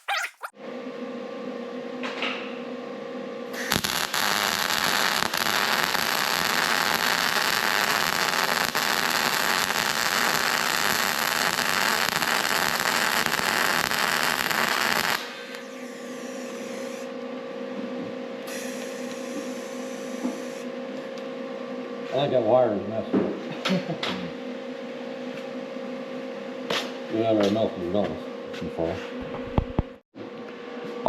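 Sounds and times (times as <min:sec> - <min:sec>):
welding arc crackling: 0:03.6 - 0:15.3.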